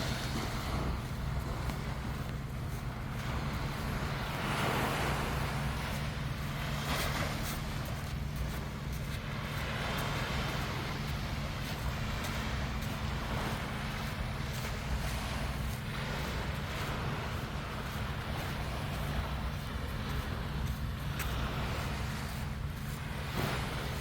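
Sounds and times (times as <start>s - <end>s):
sea waves washing: 0.0s - 24.0s
steady low hum: 0.0s - 24.0s.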